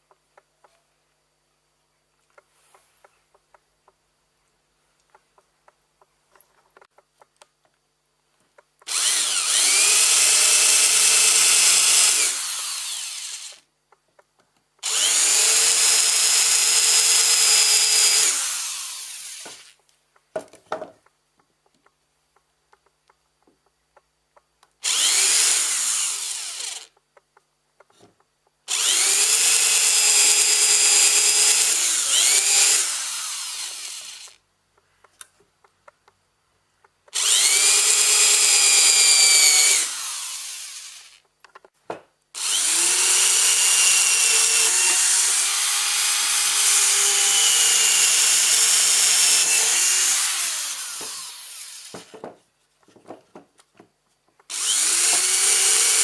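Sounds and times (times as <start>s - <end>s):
electric planer whining: 8.9s - 13.6s, 14.8s - 19.7s, 24.8s - 26.9s, 28.7s - 34.4s, 37.2s - 41.2s, 42.4s - 52.1s, 54.5s - 56.0s.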